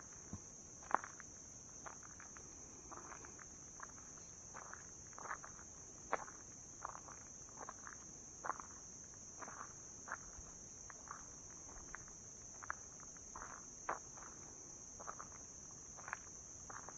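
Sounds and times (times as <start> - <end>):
insects droning: 0.0 - 16.9
soft taps or crunches: 0.3 - 1.1.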